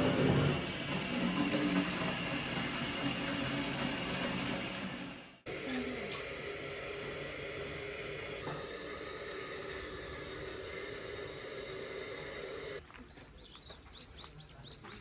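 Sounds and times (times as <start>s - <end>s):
steady rushing hiss: 0.0s - 12.8s
birds chirping: 11.6s - 15.0s.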